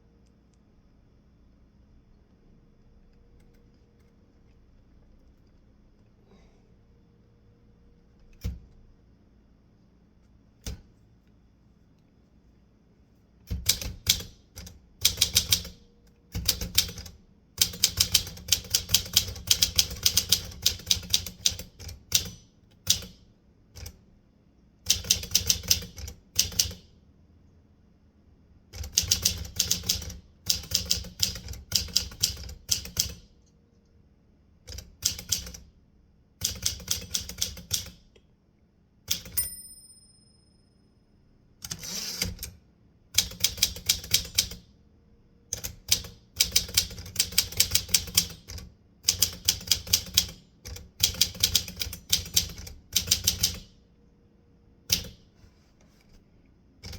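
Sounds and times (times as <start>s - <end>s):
typewriter bell ding: 39.2s - 40.9s
typewriter carriage return rasp: 41.6s - 42.6s.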